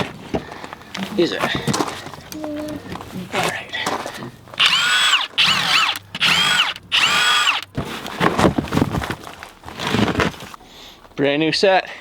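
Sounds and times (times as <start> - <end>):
power drill whining: 0.8 - 8.2.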